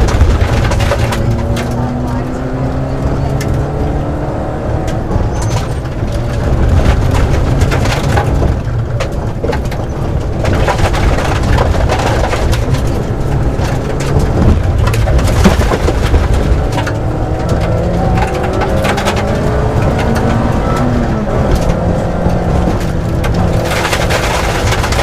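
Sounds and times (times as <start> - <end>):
gravel clattering against underbody: 0.0 - 2.2, 5.3 - 25.0
rally car engine revving: 0.0 - 25.0.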